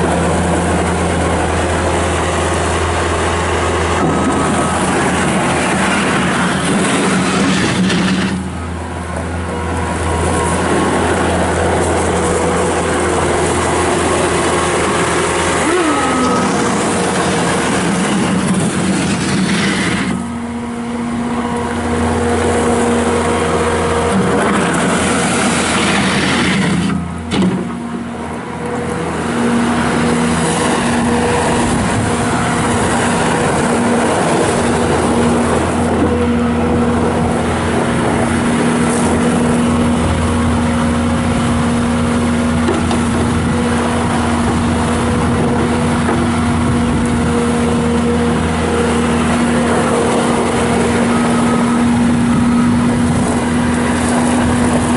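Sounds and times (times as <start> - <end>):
diesel engine running steadily: 0.0 - 54.9.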